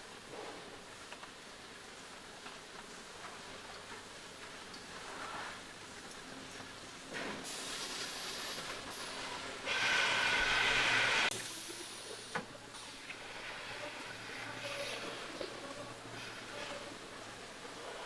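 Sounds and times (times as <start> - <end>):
hiss: 7.1 - 18.0.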